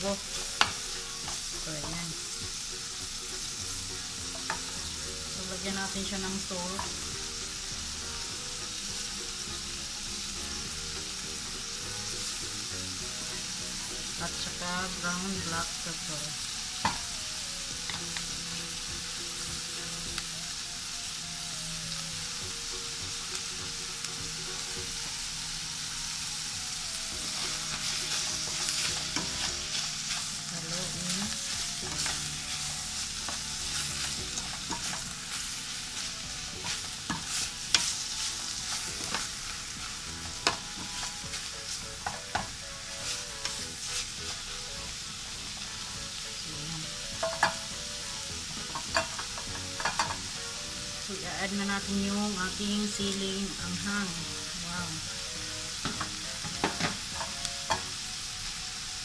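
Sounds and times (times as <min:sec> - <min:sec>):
food sizzling in a pan: 0:00.0 - 0:59.0
spatula scraping pan: 0:00.1 - 0:12.4, 0:27.1 - 0:50.4.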